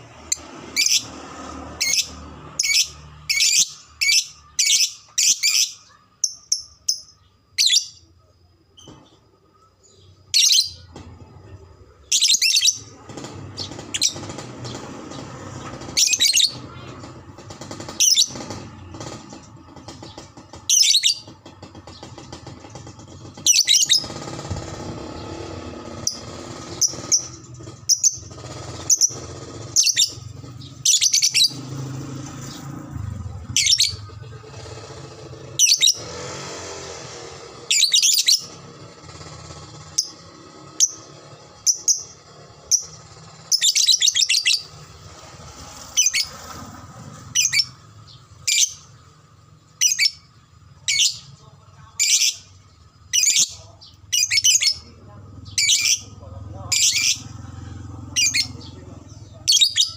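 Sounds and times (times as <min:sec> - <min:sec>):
lovebird shrill chattering calls: 0:25.7 - 0:31.7, 0:35.5 - 0:36.0, 0:37.6 - 0:44.9, 0:45.8 - 0:46.4, 0:47.2 - 0:49.0, 0:52.0 - 0:54.9, 0:55.5 - 0:56.1, 0:56.7 - 0:57.4.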